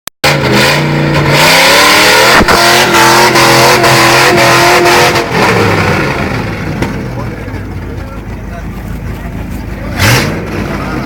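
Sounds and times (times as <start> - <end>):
car engine revving on limiter: 0.2 - 7.0, 9.8 - 11.0.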